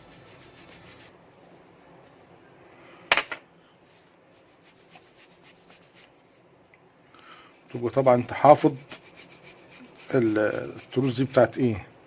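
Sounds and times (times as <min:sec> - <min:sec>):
faint rubbing and handling noises: 0:00.0 - 0:02.2, 0:03.8 - 0:06.6, 0:07.4 - 0:11.6.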